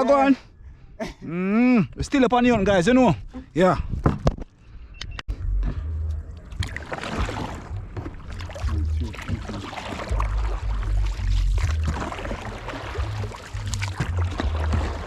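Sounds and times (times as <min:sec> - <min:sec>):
boat rushing through water: 0:06.4 - 0:15.0.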